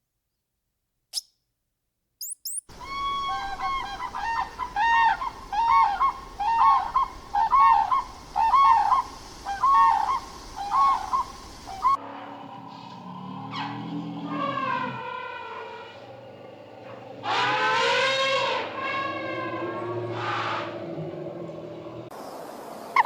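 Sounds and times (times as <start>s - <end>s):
short high chirps: 2.2s - 2.7s
poultry calling: 2.7s - 12.0s, 17.1s - 21.8s.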